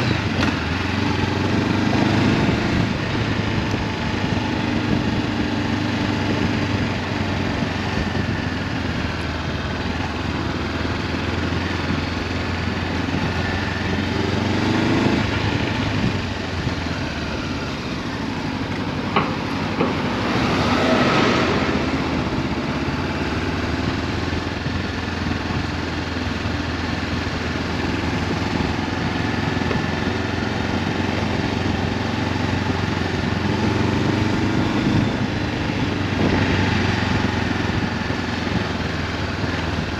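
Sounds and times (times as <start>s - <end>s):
wind noise on camera: 0.0s - 10.4s, 11.3s - 17.6s, 18.6s - 39.9s
motorcycle engine revving: 0.0s - 39.9s
rush of noise: 15.1s - 24.1s.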